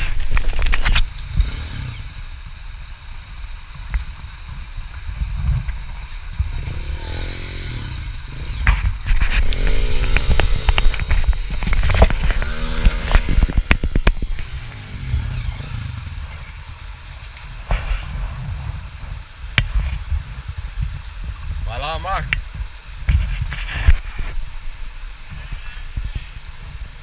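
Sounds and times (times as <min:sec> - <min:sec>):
dirt bike engine revving: 0:01.0 - 0:02.3, 0:06.3 - 0:16.7.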